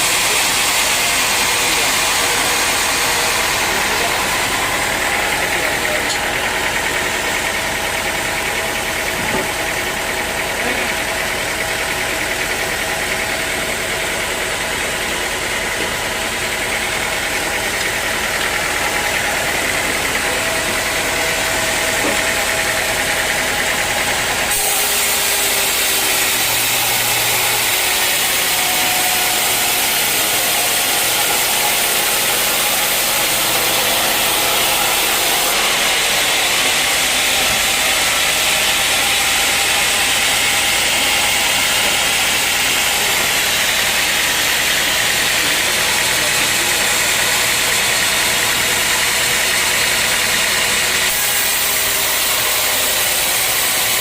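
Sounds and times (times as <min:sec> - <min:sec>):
sawmill machinery humming: 0:00.0 - 0:54.0.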